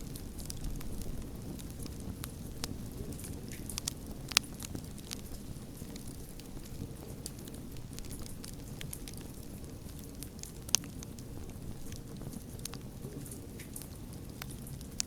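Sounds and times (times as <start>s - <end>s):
fire crackles: 0.0s - 15.0s
wood fire rumbling: 0.0s - 15.0s.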